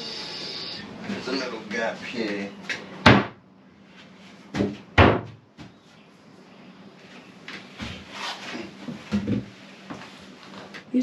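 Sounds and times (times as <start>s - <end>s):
wooden floor panel knocks: 4.5s - 5.7s.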